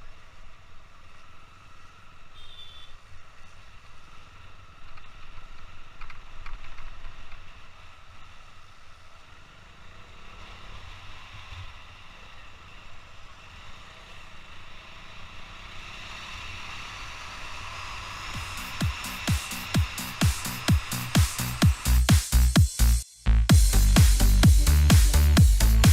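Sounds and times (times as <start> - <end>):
motorcycle engine rumble: 11.8 - 25.9.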